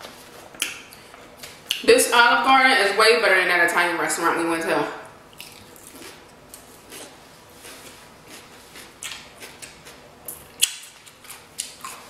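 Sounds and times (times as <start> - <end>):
person chewing food: 5.3 - 12.0.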